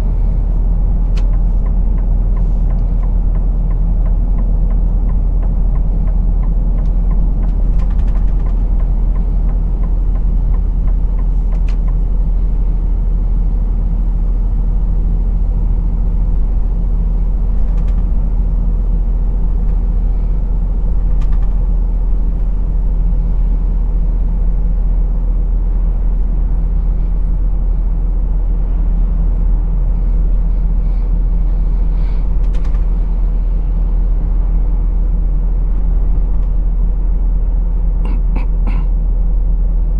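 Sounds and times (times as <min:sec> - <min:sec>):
truck engine and road drone: 0:00.0 - 0:39.9.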